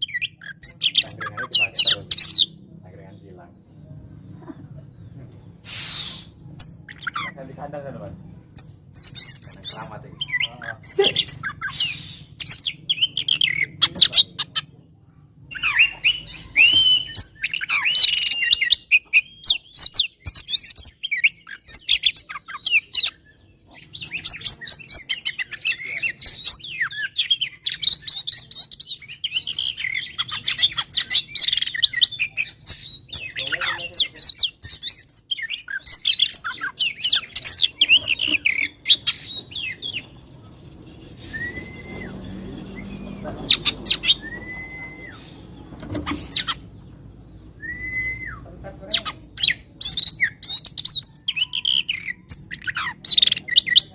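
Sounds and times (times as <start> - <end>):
magpie-robin singing whistles: 8.6 - 10.5, 11.2 - 14.3, 15.5 - 40.1, 41.2 - 45.4, 47.5 - 48.4, 49.0 - 53.9.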